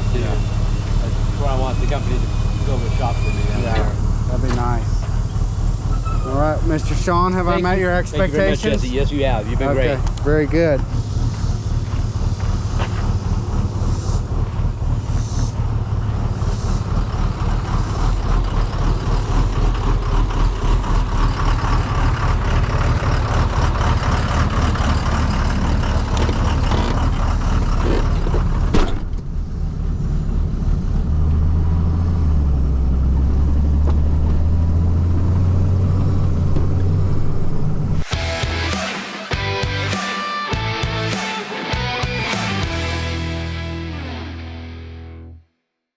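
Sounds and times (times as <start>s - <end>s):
truck engine running: 0.0s - 40.0s, 40.6s - 45.1s
sharp click: 10.0s - 10.3s.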